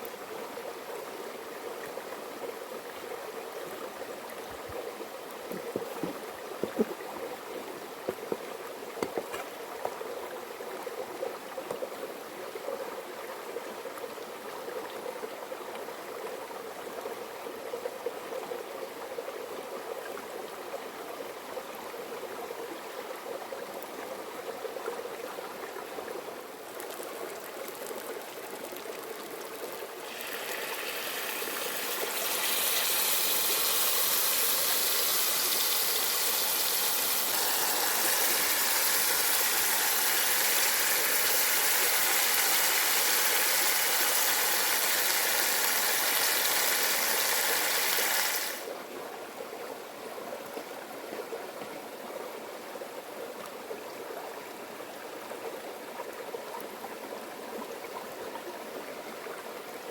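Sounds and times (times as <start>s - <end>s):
food sizzling in a pan: 30.0s - 48.6s.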